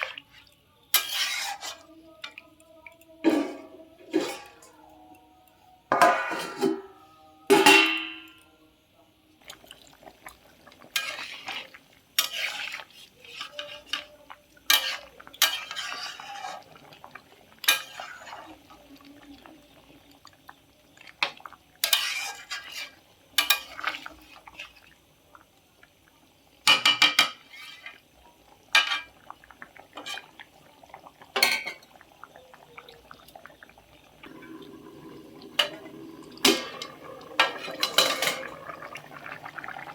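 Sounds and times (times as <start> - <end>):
metal spoons and pots clanking: 1.0 - 1.8, 3.2 - 4.8, 5.9 - 8.4, 35.6 - 38.6.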